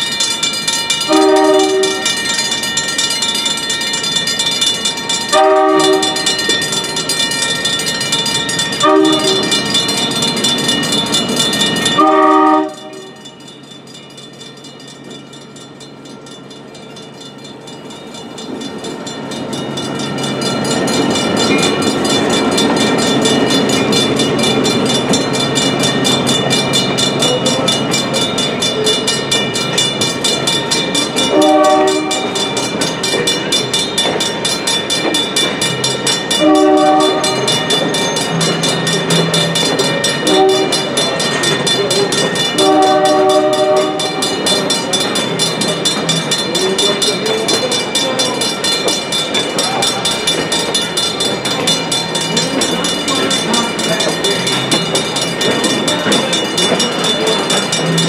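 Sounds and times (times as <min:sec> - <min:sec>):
crossing bell ringing: 0:00.0 - 0:58.0
train cars rumbling over rails: 0:00.0 - 0:58.0
locomotive air horn: 0:01.1 - 0:02.1, 0:05.3 - 0:06.3, 0:08.8 - 0:09.5, 0:12.0 - 0:13.2, 0:31.3 - 0:32.4, 0:36.4 - 0:37.5, 0:40.2 - 0:40.9, 0:42.6 - 0:44.2.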